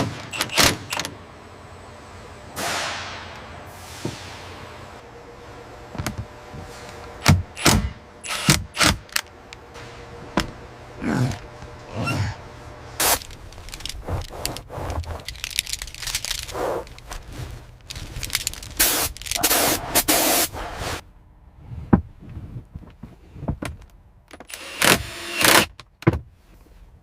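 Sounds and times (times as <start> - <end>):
hissing bursts: 18.8 - 21.0.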